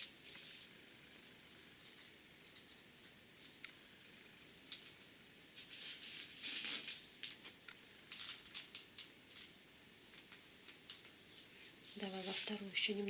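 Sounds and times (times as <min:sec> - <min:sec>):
beads pattering onto paper: 0:04.7 - 0:13.0.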